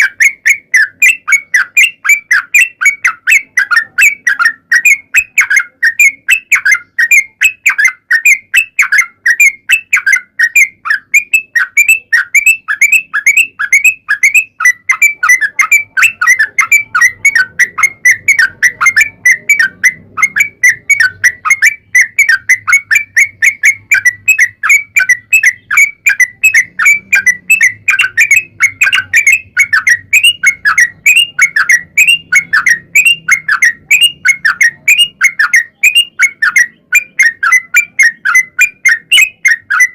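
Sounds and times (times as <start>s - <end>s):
bird singing bubbly notes: 0.0s - 39.9s.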